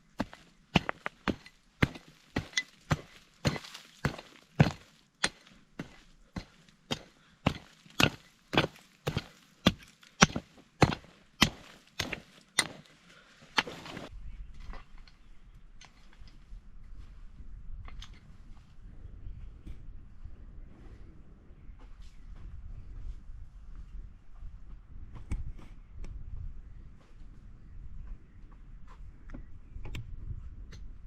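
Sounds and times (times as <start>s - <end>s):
blade chopping wood: 0.2s - 12.9s.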